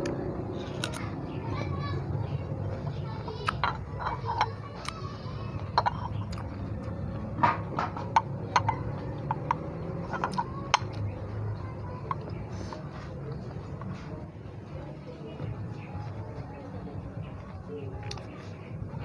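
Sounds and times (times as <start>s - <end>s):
crunchy chewing: 0.0s - 1.2s, 1.9s - 11.3s.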